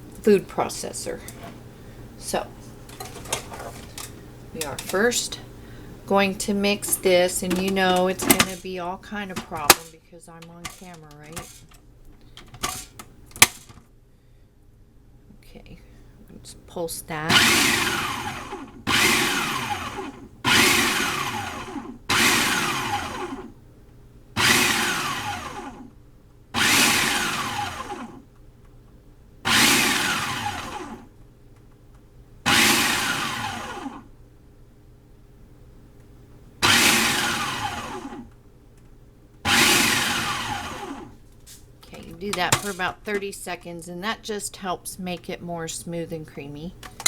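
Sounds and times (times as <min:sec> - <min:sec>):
food processor pulsing: 0:06.8 - 0:09.9, 0:10.6 - 0:11.7, 0:12.5 - 0:13.7, 0:17.3 - 0:23.5, 0:24.4 - 0:25.9, 0:26.6 - 0:28.2, 0:29.5 - 0:31.1, 0:32.5 - 0:34.1, 0:36.6 - 0:38.3, 0:39.5 - 0:41.1, 0:42.4 - 0:42.9.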